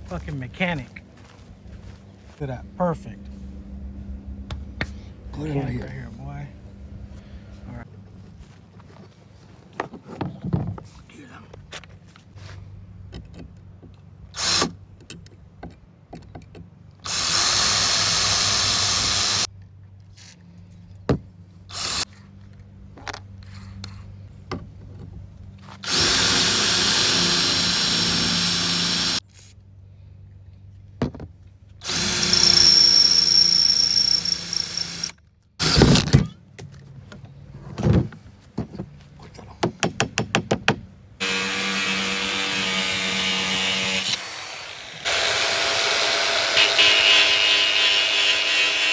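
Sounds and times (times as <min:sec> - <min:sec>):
electric drill boring into steel: 0:17.1 - 0:19.5, 0:25.8 - 0:29.2, 0:31.8 - 0:35.8, 0:41.2 - 0:48.9.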